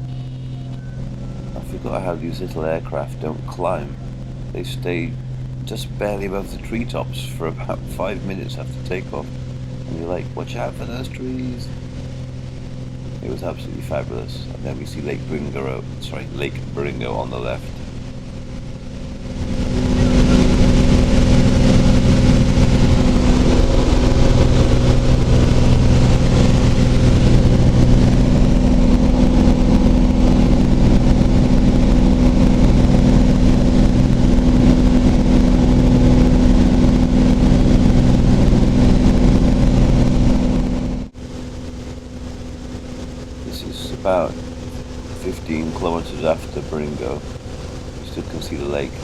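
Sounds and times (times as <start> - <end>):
airplane engine and propeller: 0.0 - 49.0.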